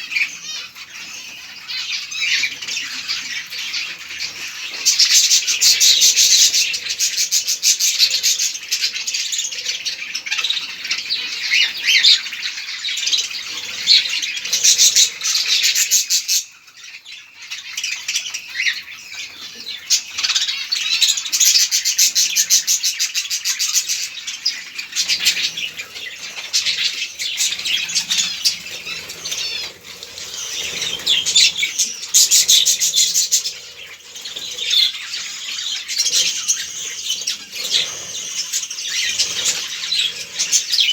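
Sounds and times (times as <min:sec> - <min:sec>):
budgerigars chattering: 0:00.0 - 0:40.9
wings fluttering: 0:24.9 - 0:40.9.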